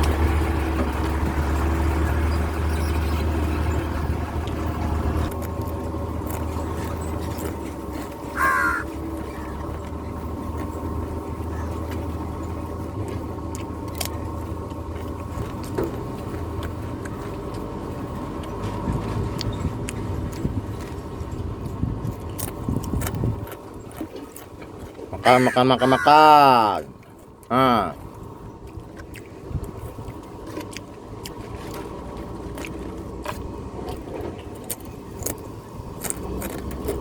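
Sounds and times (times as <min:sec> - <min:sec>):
crow cawing: 0:08.3 - 0:09.6, 0:25.2 - 0:26.7.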